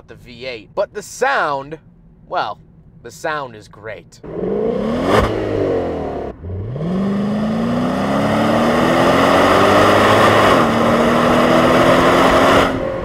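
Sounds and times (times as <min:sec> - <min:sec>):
car engine accelerating: 0:04.2 - 0:13.0.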